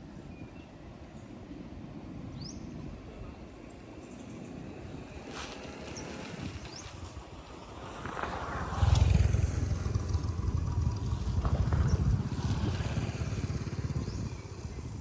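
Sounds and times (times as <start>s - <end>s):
motorbike engine running: 8.1s - 15.0s.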